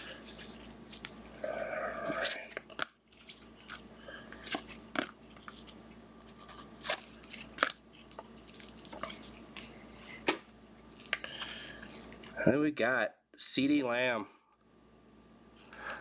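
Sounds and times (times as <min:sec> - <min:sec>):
cards clicking and rustling: 0:02.2 - 0:09.7.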